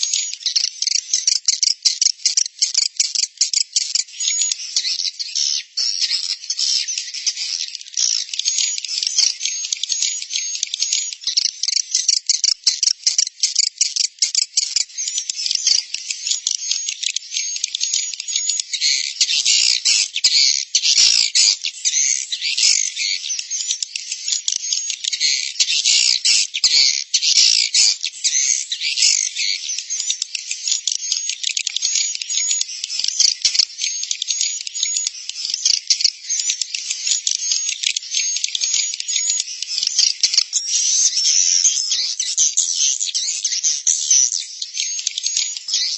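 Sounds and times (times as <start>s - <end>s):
swiftlets chirping and twittering: 0.0s - 45.9s.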